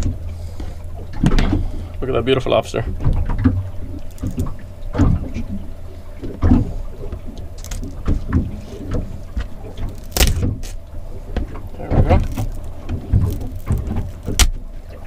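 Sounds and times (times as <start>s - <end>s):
steady low hum: 0.0s - 15.0s
knife cracking lobster shell: 10.0s - 10.8s.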